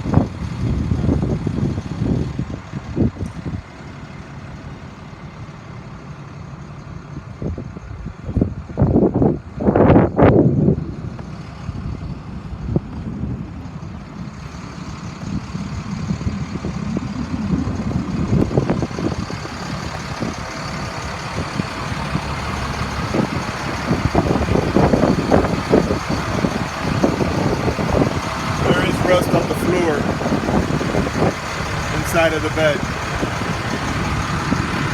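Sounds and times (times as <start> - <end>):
diesel engine idling: 0.0 - 34.9
loud rush of noise: 13.6 - 34.9.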